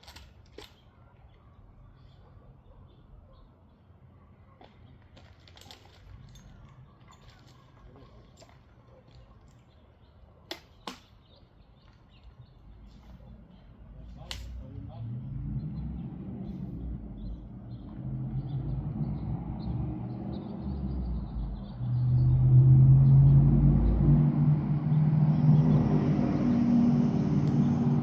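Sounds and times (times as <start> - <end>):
engine running and revving: 14.6 - 28.0.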